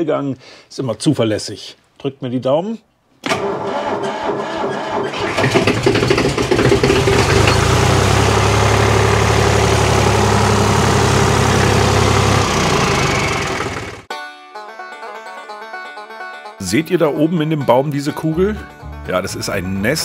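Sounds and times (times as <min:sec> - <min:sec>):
tractor diesel engine starting: 0:03.2 - 0:14.1.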